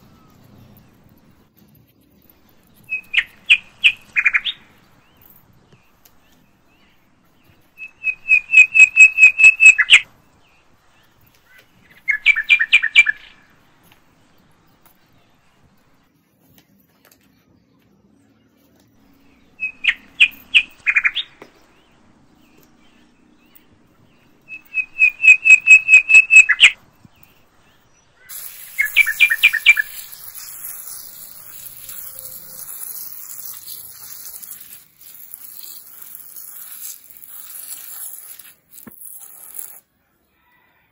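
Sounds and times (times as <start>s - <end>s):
bird chirping: 0.0s - 16.1s, 17.2s - 38.8s
water spraying onto soil: 28.3s - 39.8s.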